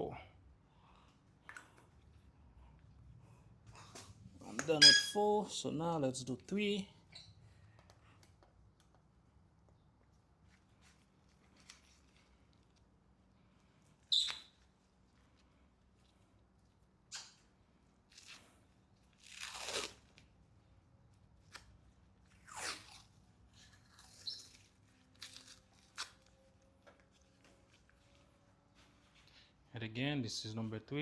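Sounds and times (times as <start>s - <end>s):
ringing metal clink: 4.8s - 5.3s.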